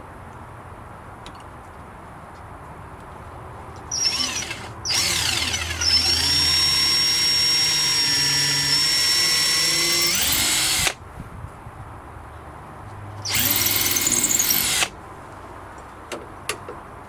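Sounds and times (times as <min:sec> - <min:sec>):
power drill whining: 0:03.9 - 0:11.0, 0:13.3 - 0:14.9.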